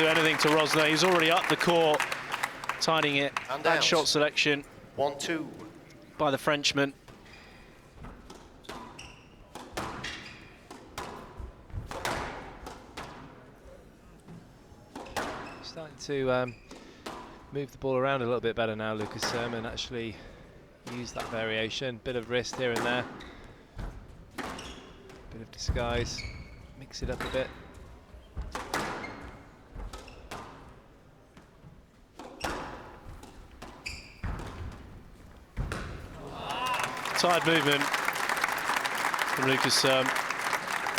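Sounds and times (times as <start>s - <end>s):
squash ball hitting rackets and walls: 8.0s - 13.3s, 32.2s - 36.2s
shoe squeaks on court floor: 8.7s - 10.6s, 24.5s - 25.1s, 32.4s - 36.1s
squash ball hits: 32.4s - 36.4s.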